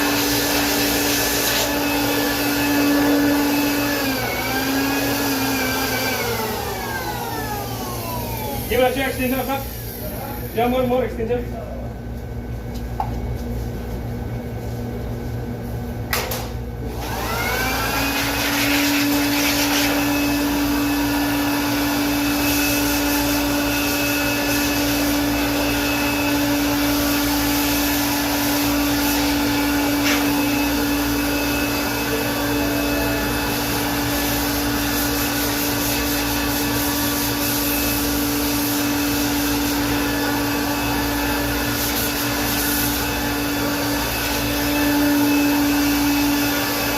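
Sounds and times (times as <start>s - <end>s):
air blower motor whining: 0.0s - 46.9s.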